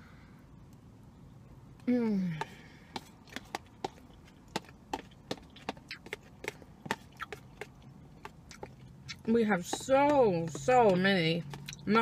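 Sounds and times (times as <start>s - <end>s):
person humming: 1.9s - 2.5s
wet chewing clicks and smacks: 3.2s - 11.9s.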